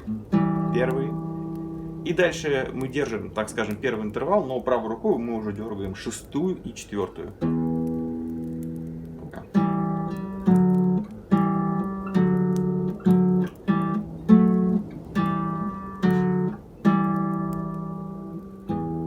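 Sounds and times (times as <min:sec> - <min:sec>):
classical guitar plucking: 0:00.0 - 0:19.0.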